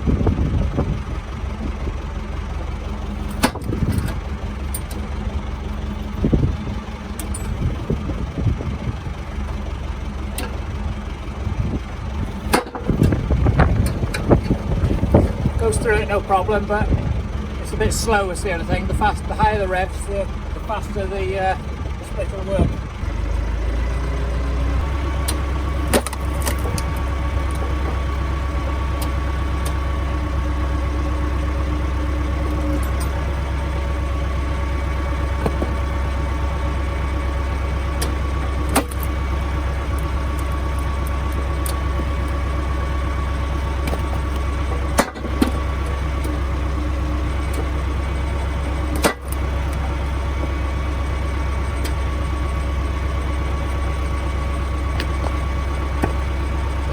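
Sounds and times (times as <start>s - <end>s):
tractor diesel engine running: 0.0s - 56.9s
logs knocking as split: 25.3s - 27.0s, 35.3s - 36.0s, 43.6s - 45.6s.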